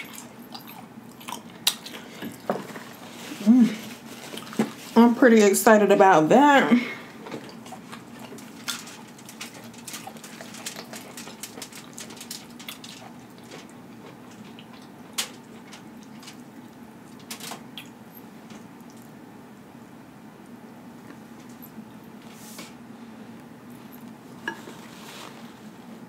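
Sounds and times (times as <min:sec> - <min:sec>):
wet chewing and lip smacks: 0:00.0 - 0:02.9, 0:07.4 - 0:18.0, 0:18.6 - 0:19.2
faint steady hum: 0:00.0 - 0:26.0.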